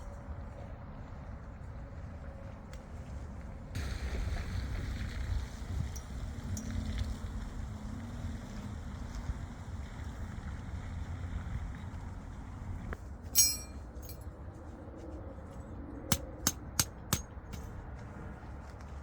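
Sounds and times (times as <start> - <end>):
sharp ringing clink: 13.4 - 14.2.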